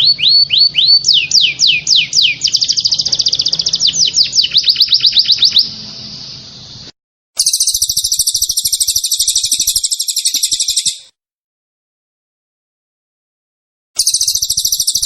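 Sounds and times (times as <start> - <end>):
songbird down-slurred notes: 0.0 - 6.9
bird buzzy trill: 0.0 - 11.1, 14.0 - 15.0.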